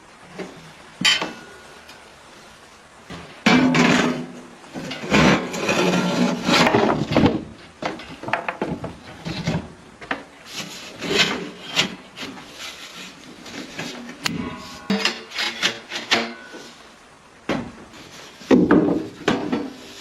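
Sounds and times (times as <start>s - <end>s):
wood being scraped: 3.7s - 7.2s, 10.4s - 16.8s.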